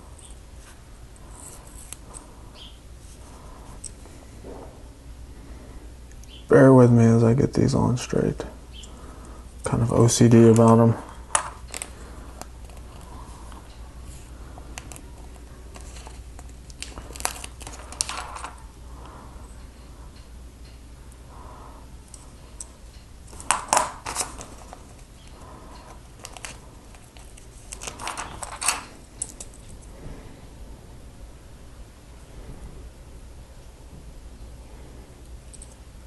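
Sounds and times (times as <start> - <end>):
low steady hum: 0.0 - 36.0
stickers peeling with crinkling rustles: 9.6 - 19.2, 23.2 - 29.8.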